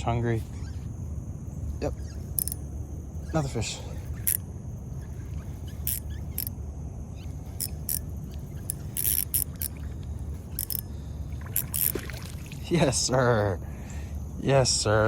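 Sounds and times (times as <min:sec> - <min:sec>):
fishing tackle clicks: 0:02.3 - 0:02.6, 0:04.2 - 0:04.4, 0:05.7 - 0:06.5, 0:07.6 - 0:10.9, 0:11.6 - 0:12.0.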